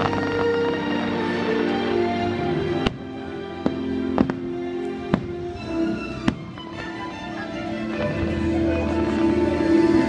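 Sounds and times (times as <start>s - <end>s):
fireworks bangs: 0.0s - 0.7s
show music: 0.0s - 10.0s.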